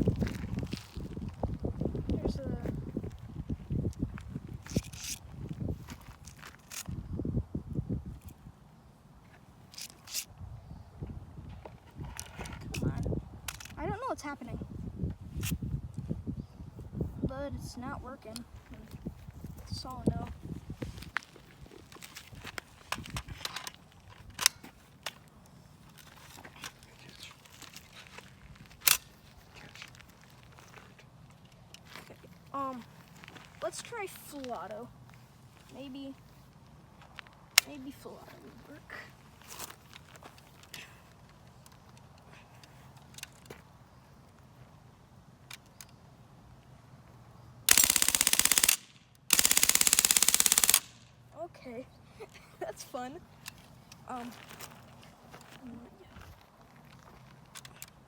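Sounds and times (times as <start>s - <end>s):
bb gun clicks and clacks: 47.7s - 51.0s.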